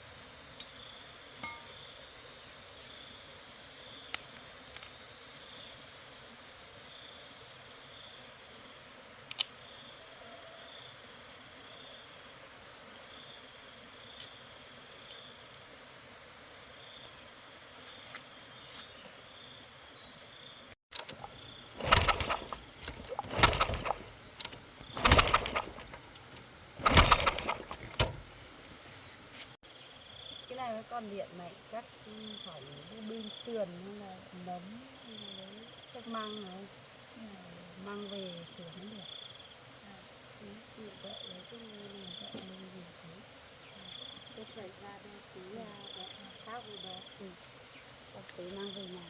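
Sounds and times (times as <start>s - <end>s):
crickets chirping: 0.0s - 49.0s
loud rough bursts: 21.0s - 28.4s.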